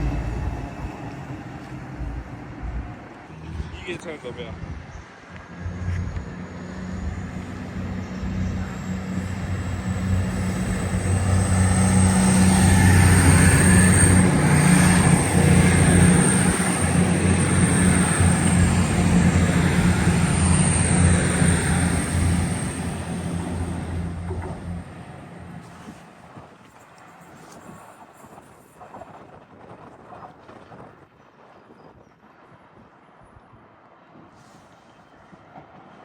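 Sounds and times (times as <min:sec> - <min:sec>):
diesel train passing: 0:00.0 - 0:27.2.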